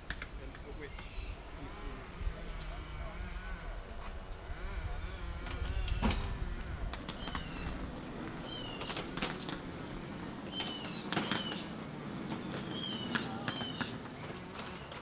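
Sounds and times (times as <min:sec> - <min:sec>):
high-pitched chirping animal calls: 0:07.1 - 0:09.2, 0:10.5 - 0:11.7, 0:12.7 - 0:14.0.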